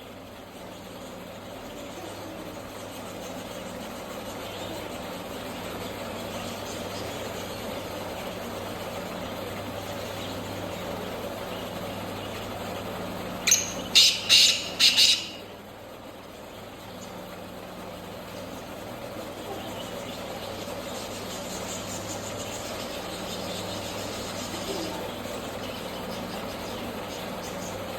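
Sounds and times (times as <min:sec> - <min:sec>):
steady low hum: 0:00.0 - 0:27.9
bird harsh grating call: 0:13.5 - 0:15.5.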